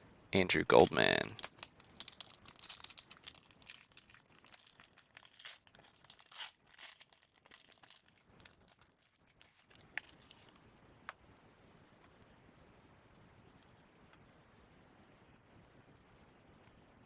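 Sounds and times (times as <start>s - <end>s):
cards rustling: 0.5s - 10.5s
wrapper crinkling and tearing: 0.7s - 10.5s.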